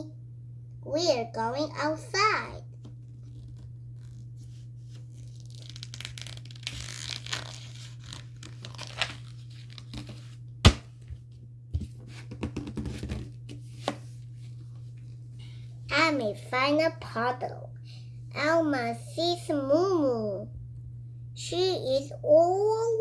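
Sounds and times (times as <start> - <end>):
steady low hum: 0.0 - 23.0
paper pages rustling: 4.9 - 10.8.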